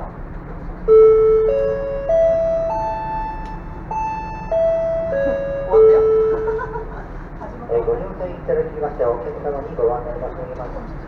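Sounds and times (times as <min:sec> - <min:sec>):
ship hum: 0:00.0 - 0:11.0
public address chime: 0:00.9 - 0:07.2.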